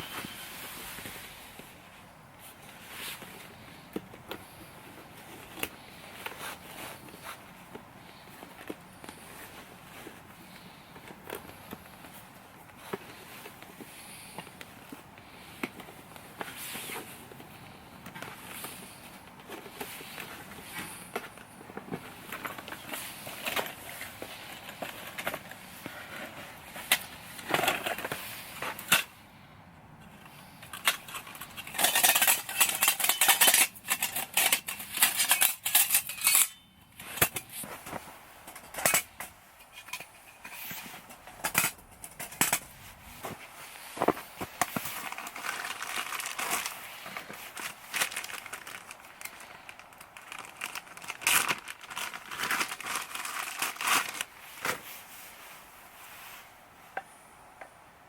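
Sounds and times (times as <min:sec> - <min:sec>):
crinkling and rustling: 0:00.0 - 0:29.3, 0:30.0 - 0:57.1
clicks and clinks of handling: 0:30.0 - 0:54.8.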